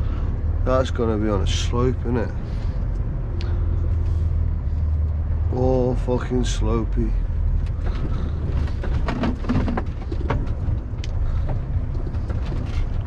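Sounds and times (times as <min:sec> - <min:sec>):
diesel lorry engine running low: 0:00.0 - 0:13.0
light clicks and rattles: 0:07.5 - 0:13.0.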